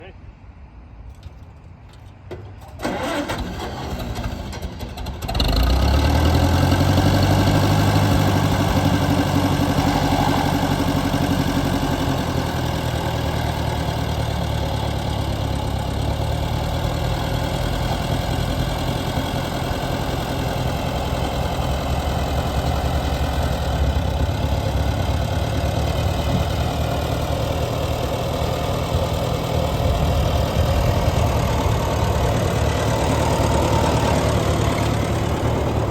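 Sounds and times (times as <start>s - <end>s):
tractor engine idling: 1.0s - 35.9s
tractor engine starter cranking: 1.1s - 9.0s.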